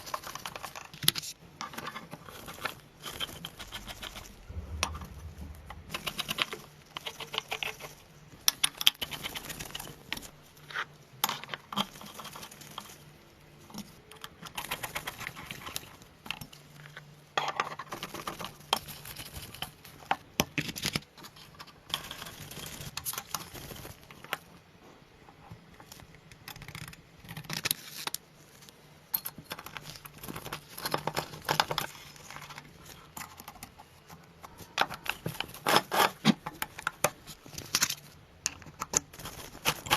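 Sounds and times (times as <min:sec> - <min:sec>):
small model parts clicking and rattling: 0:00.0 - 0:04.4, 0:05.9 - 0:24.5, 0:25.4 - 0:39.9.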